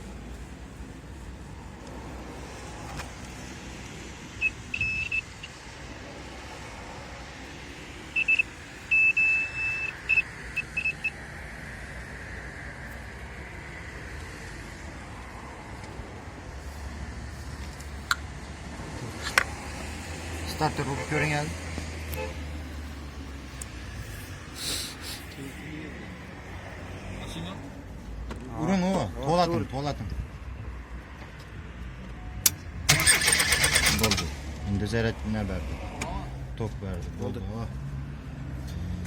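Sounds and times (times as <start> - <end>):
high-pitched electronic beeps: 8.2 - 11.2.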